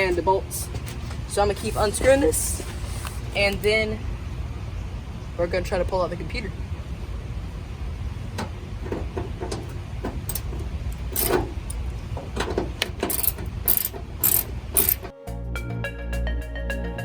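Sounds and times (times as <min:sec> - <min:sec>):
metallic clicks of hand tool: 0:10.3 - 0:11.8, 0:12.8 - 0:15.1.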